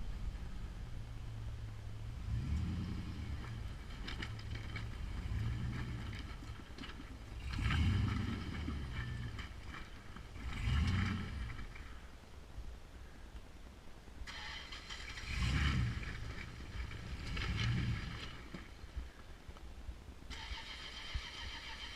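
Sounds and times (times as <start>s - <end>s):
engine revving in bursts: 7.4s - 9.5s, 10.3s - 11.7s, 14.3s - 18.4s.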